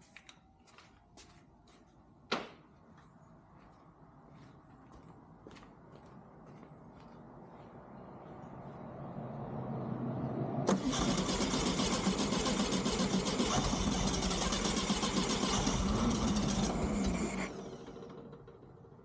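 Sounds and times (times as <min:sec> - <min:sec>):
starter motor cranking engine: 0:10.7 - 0:19.0.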